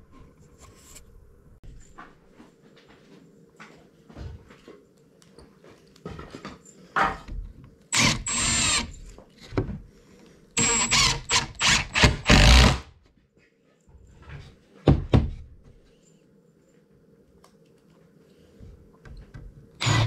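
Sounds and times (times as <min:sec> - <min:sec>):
cordless screwdriver motor whine: 0:08.0 - 0:09.0.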